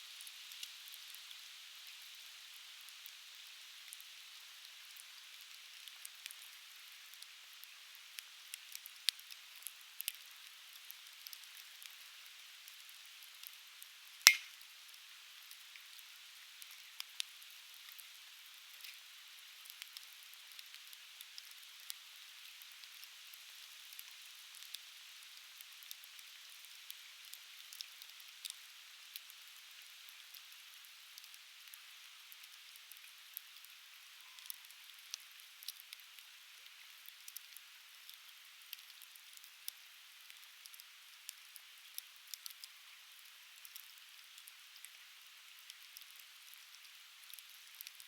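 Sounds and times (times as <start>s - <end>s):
faint steady hiss: 0.0s - 48.0s
firewood crackling and popping: 7.1s - 23.1s, 34.4s - 45.0s, 45.6s - 48.0s.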